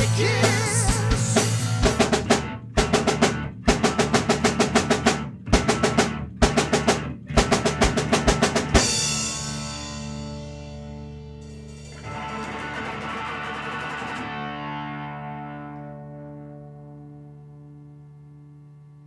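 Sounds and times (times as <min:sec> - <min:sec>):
rock band playing: 0:00.0 - 0:18.5
snare drum rolls: 0:01.8 - 0:08.9
ringing final guitar chord: 0:08.8 - 0:18.7.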